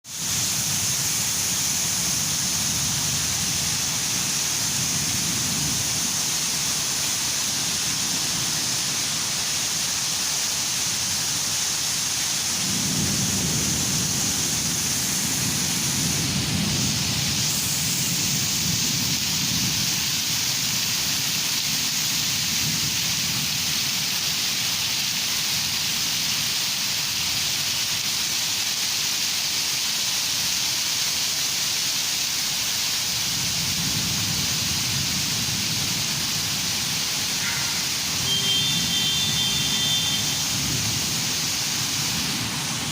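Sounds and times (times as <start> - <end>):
heavy rain falling: 0.0 - 42.9
thunder rumbling: 0.4 - 8.8, 12.4 - 23.7, 33.2 - 42.9.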